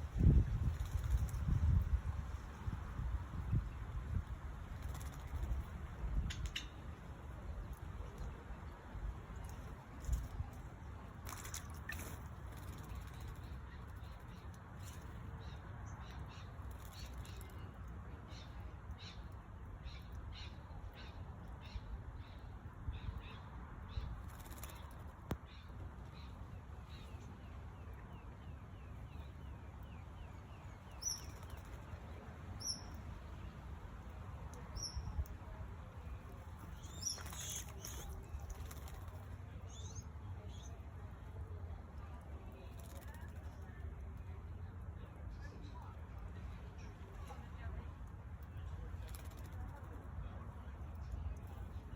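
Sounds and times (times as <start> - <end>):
birds calling: 36.6 - 40.8.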